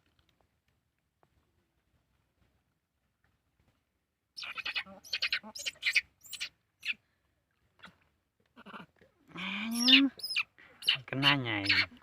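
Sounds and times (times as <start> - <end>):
baby monkey high-pitched calls: 4.4 - 7.0, 9.4 - 12.0.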